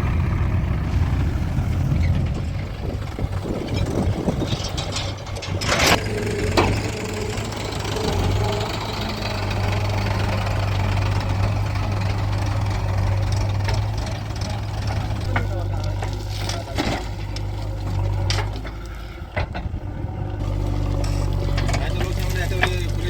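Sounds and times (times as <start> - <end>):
diesel engine running: 0.0 - 23.0
metallic clank: 1.9 - 7.4.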